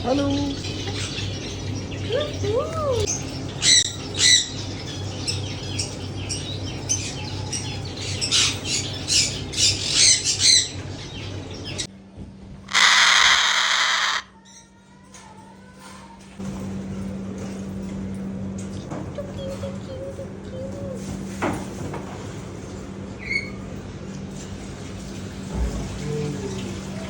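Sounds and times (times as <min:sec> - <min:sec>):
birds squawking and chirping: 0:00.0 - 0:11.9, 0:12.7 - 0:14.7
steady low hum: 0:00.0 - 0:14.8, 0:16.1 - 0:27.0
loud harsh parrot screech: 0:12.7 - 0:14.4.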